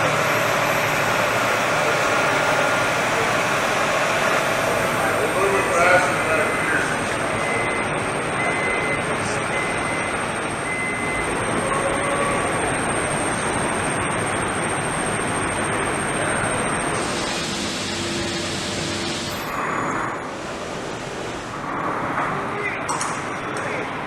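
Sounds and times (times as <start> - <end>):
jet engine roar: 0.0 - 22.6
faint high beep: 7.4 - 16.9.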